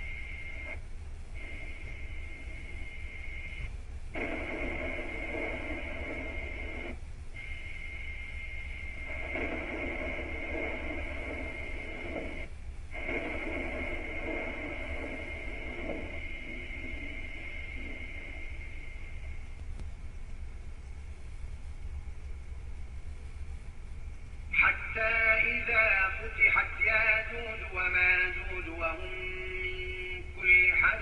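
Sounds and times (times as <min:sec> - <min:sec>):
low droning: 0:00.0 - 0:19.8
electronic hum and static: 0:00.0 - 0:31.0.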